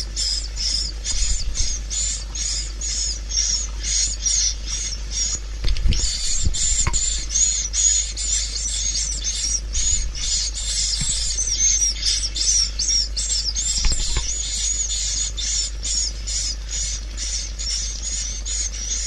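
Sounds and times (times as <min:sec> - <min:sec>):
high twittering bird chirps: 0:00.0 - 0:19.0
low steady hum: 0:00.0 - 0:19.0
soft low thumps: 0:05.6 - 0:07.6, 0:09.6 - 0:12.0.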